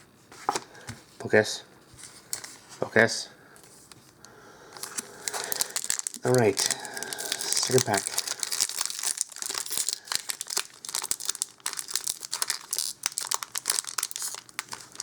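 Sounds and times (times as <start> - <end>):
foil wrapper crinkling and tearing: 4.8 - 15.0.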